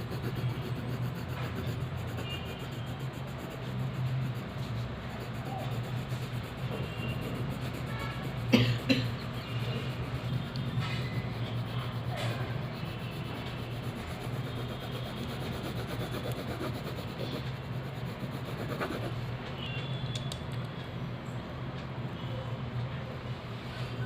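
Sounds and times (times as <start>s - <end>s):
pencil rubbing on paper: 0.0s - 19.3s
faint clicks: 20.1s - 20.8s.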